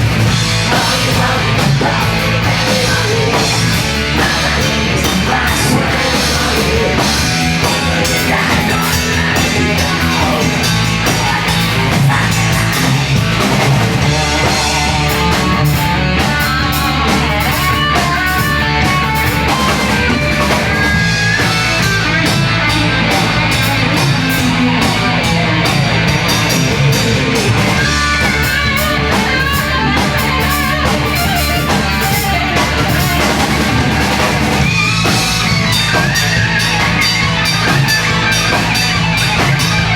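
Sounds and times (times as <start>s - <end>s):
distorted electric guitars: 0.0s - 39.9s
drum kit with cymbals: 0.0s - 39.9s.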